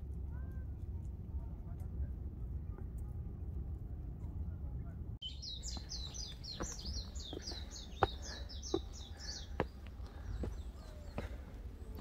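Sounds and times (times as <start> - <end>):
songbird singing: 5.2 - 12.0
footsteps on stone steps: 5.5 - 12.0.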